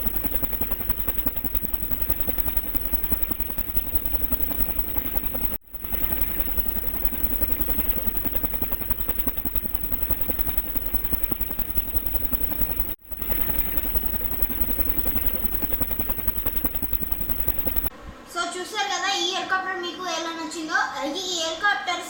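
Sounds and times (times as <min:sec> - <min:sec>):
small motor buzzing rattle: 0:00.0 - 0:17.9.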